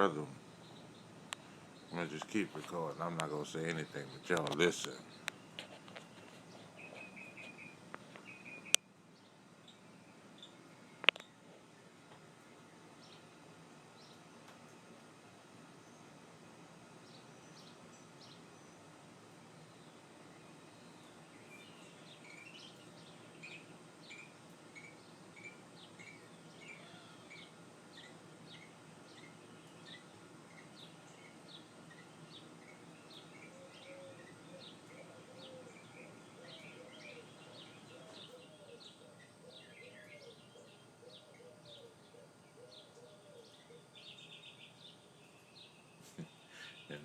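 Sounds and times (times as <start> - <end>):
lower animal call: 26.1 - 27.6.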